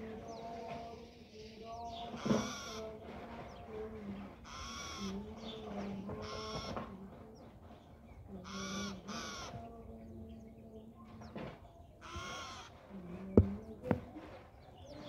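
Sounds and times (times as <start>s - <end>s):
harsh caw-like bird calls: 2.2s - 2.9s, 4.4s - 5.2s, 8.4s - 9.6s, 12.0s - 12.8s.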